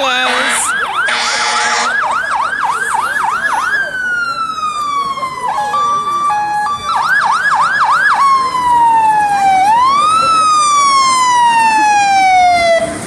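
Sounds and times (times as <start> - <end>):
fire truck siren: 0.0 - 13.0.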